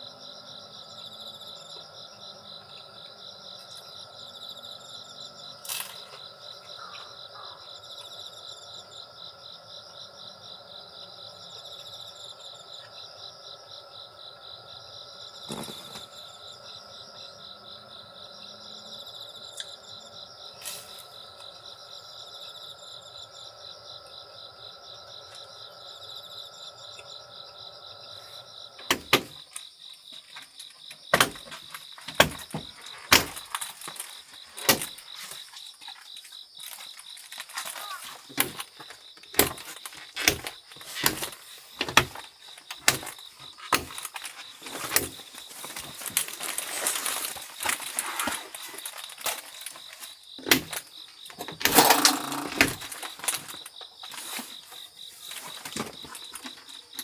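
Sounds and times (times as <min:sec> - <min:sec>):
insects chirping: 0:00.0 - 0:57.0
sharp clicks and knocks: 0:39.3 - 0:45.2, 0:50.4 - 0:53.5.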